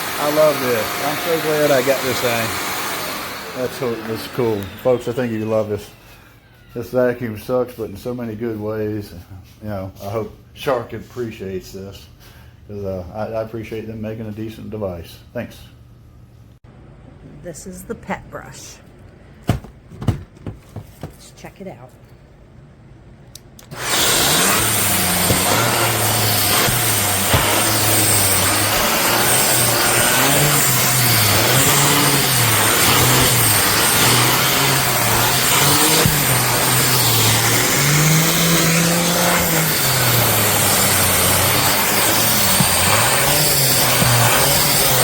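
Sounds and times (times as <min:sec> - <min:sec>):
vacuum cleaner running: 0:00.0 - 0:06.7, 0:23.7 - 0:45.0.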